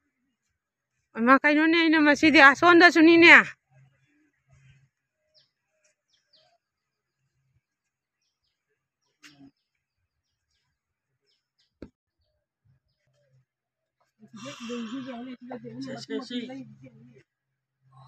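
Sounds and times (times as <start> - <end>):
faint bird chirps: 8.2 - 11.9.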